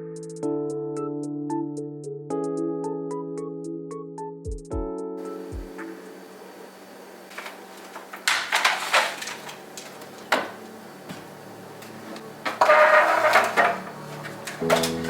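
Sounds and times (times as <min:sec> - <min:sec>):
containers clattering: 0:07.3 - 0:15.0.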